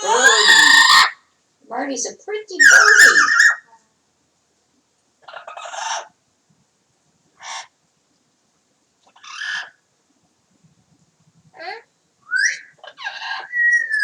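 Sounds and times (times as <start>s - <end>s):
parrot imitating chicken: 0.0s - 1.2s, 2.6s - 3.8s.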